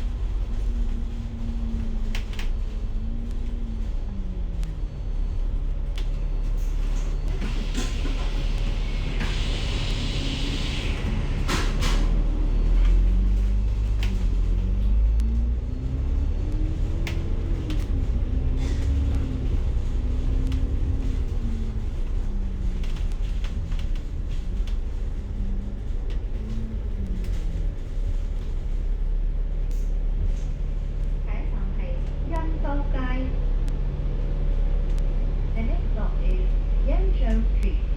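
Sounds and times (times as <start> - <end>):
bus engine rumble and whine: 0.0 - 37.9.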